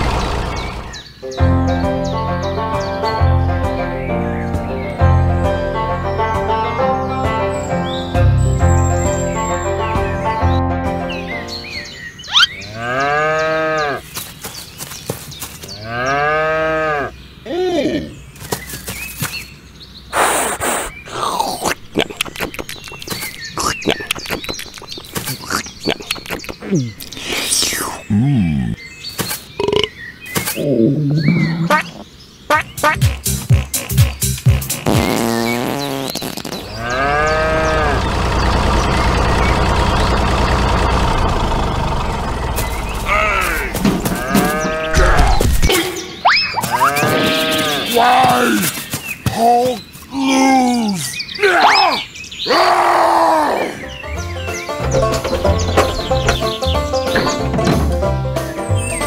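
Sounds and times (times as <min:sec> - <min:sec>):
tractor engine running: 0:00.0 - 0:01.0, 0:36.7 - 0:45.7, 0:54.1 - 0:59.0
cow mooing: 0:12.6 - 0:14.0, 0:15.8 - 0:17.1, 0:36.7 - 0:38.2, 0:43.1 - 0:45.2.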